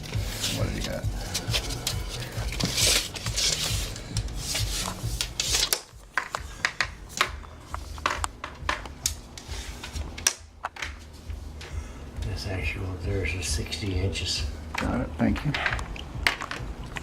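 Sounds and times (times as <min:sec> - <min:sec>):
scratchy rubbing and scraping: 0:00.1 - 0:05.9.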